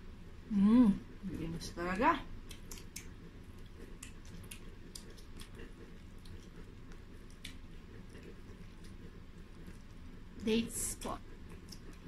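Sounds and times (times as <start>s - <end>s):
person chewing and smacking: 2.4s - 10.4s, 11.1s - 12.0s.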